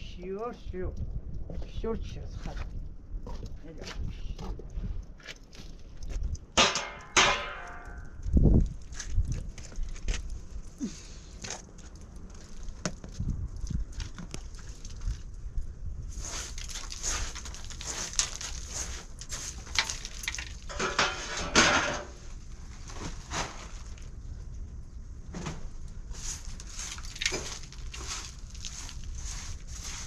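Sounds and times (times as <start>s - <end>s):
steady low rumble: 0.0s - 19.9s, 22.2s - 30.0s
knocks scrapes and rustling: 16.1s - 24.1s, 25.3s - 30.0s.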